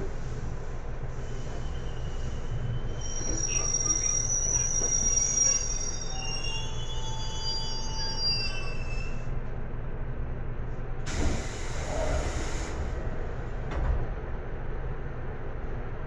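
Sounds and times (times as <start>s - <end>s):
train low rumble: 0.0s - 16.0s
train wheel squeal: 1.1s - 9.4s
air hiss: 11.1s - 13.0s.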